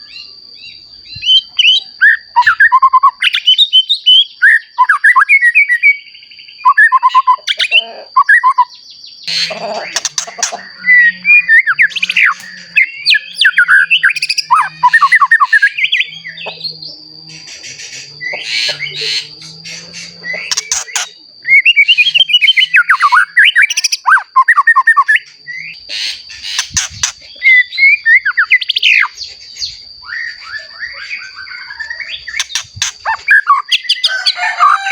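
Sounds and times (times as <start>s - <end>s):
bird singing whistled phrases: 0.0s - 25.8s, 26.4s - 29.2s, 30.0s - 34.1s
high-pitched whine: 9.3s - 23.4s.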